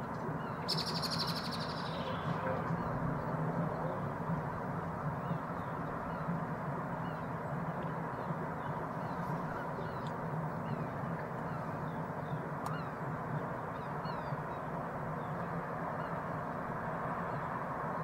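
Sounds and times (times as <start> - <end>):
distant rumble and hiss: 0.0 - 18.0
small birds chirping: 0.6 - 3.0.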